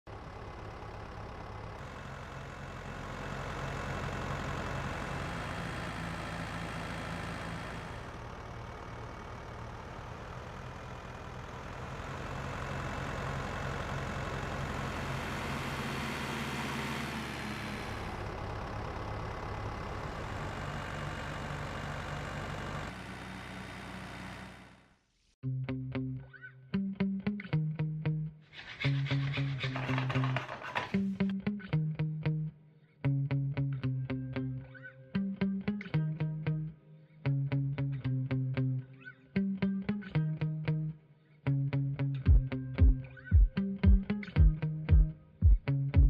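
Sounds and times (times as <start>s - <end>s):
engine humming: 0.1s - 24.9s, 41.5s - 46.0s.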